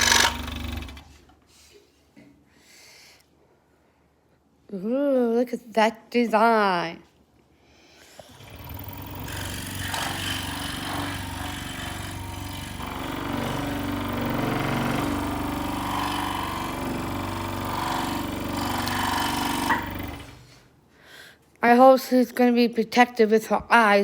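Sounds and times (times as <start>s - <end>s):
scroll saw cutting wood: 0.0s - 1.2s, 8.2s - 20.6s.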